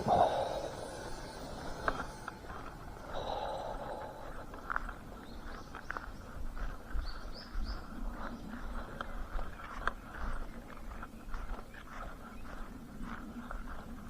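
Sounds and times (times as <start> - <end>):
small bird chirping: 3.2 - 14.0.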